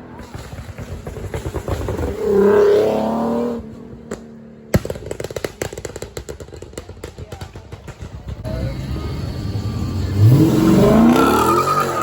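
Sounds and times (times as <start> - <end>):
car engine revving: 0.3 - 4.2, 8.4 - 12.0.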